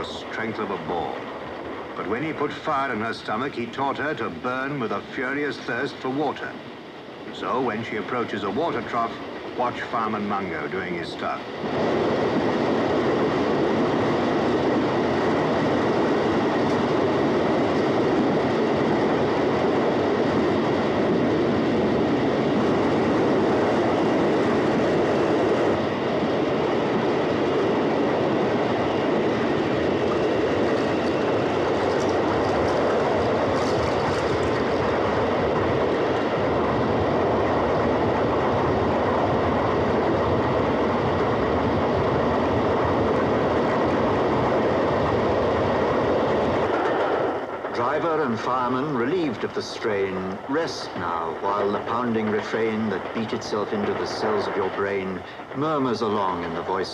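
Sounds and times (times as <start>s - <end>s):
steam train rumbling at speed: 0.0s - 56.9s
wheels clacking on rail joints: 29.8s - 36.4s, 43.6s - 56.9s.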